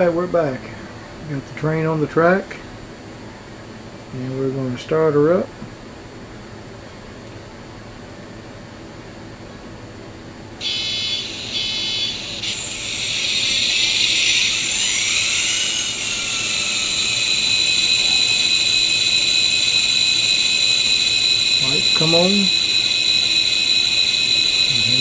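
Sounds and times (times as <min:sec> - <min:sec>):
short bursts: 0:10.6 - 0:18.4.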